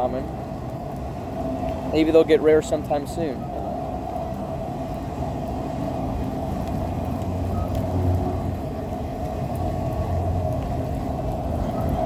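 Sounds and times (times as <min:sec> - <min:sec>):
steel wheels rumbling on rails: 0:03.7 - 0:12.0.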